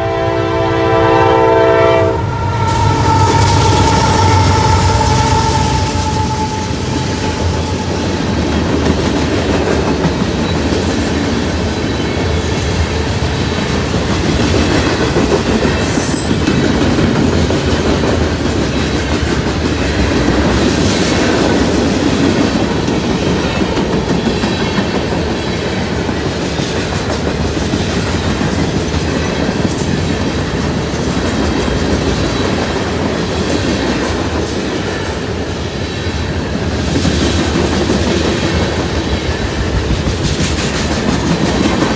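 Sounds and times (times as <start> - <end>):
high-pitched metallic squeals: 0.0 - 9.4
train wheels rumbling on rail: 0.0 - 41.9.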